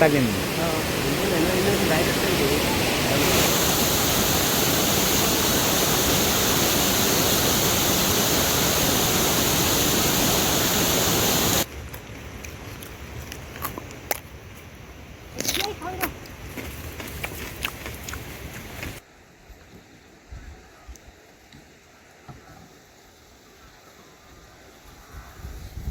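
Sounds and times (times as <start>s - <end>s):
heavy rain falling: 0.0s - 11.7s.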